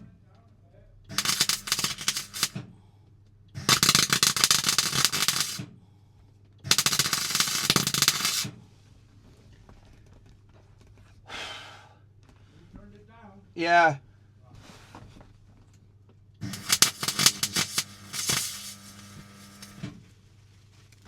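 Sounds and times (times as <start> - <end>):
welding crackle: 1.1 - 2.6, 3.6 - 5.6, 6.7 - 8.6, 16.4 - 19.9.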